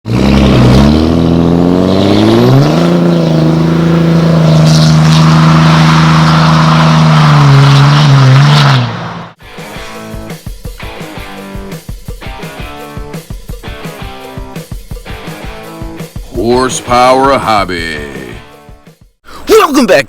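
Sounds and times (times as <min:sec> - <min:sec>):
diesel engine exhaust roar: 0:00.0 - 0:09.4.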